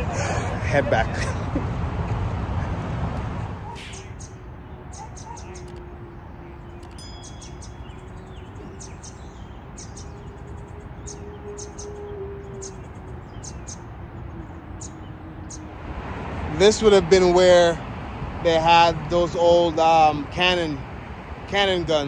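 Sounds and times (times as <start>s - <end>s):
small birds chirping: 3.6s - 15.7s.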